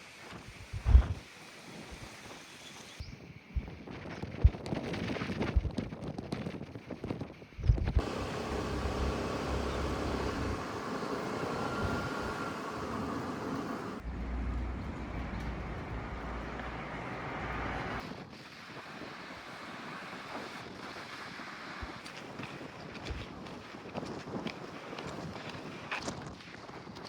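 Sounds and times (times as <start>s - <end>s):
wind buffeting microphone: 3.0s - 19.1s.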